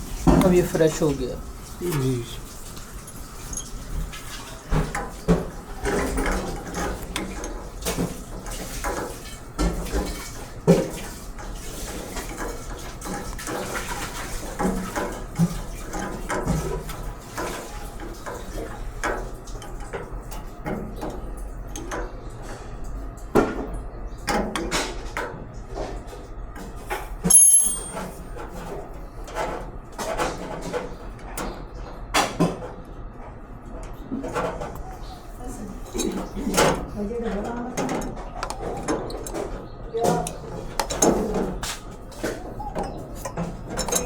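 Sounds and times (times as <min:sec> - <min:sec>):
small metal parts clinking: 0:27.2 - 0:28.1.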